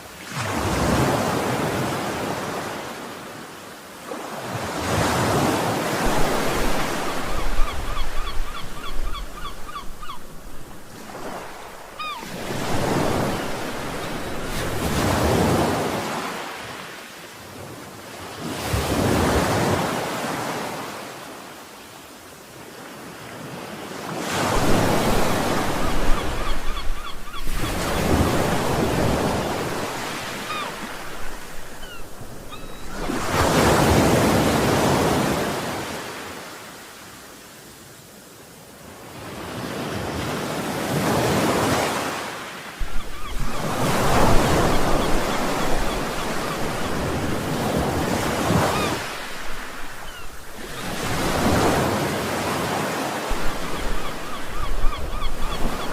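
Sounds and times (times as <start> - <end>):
sea waves washing onto shore: 0.0 - 21.6, 22.6 - 37.6, 38.8 - 55.9.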